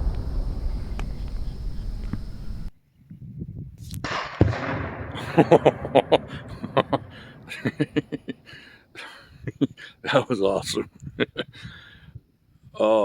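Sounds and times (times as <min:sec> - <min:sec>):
explosive target blast: 0:00.0 - 0:02.7, 0:04.1 - 0:08.4.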